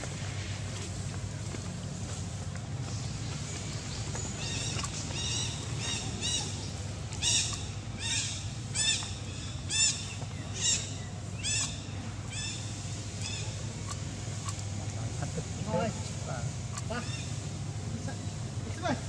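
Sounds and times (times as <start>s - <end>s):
bird calling: 3.5s - 14.5s, 16.6s - 18.6s.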